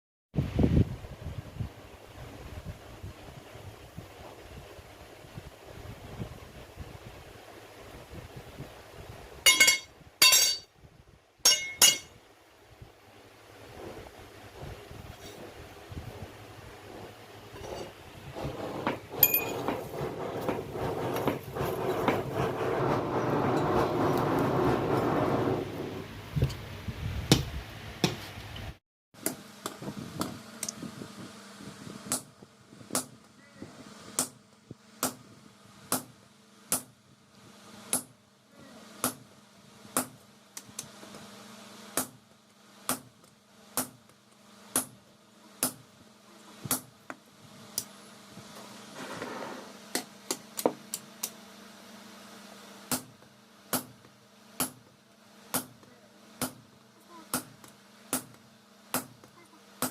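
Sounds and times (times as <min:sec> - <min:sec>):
steady low hum: 0:00.4 - 0:28.6
rumbling noise with sharp hits: 0:13.5 - 0:28.1.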